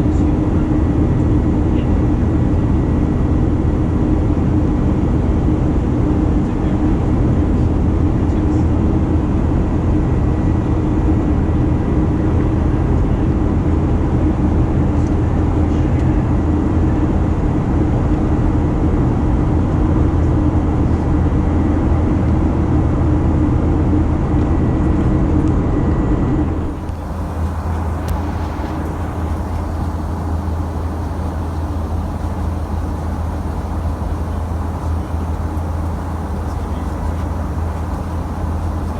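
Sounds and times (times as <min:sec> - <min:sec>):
airplane cabin engine rush: 0:00.0 - 0:18.1, 0:24.8 - 0:38.9
faint steady whine: 0:26.3 - 0:38.9.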